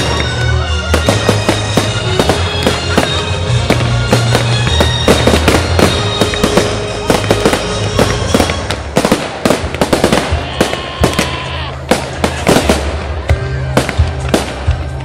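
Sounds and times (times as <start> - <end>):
music with steady bass: 0.0 - 9.0, 12.0 - 15.0
fireworks bangs and crackles: 0.0 - 15.0.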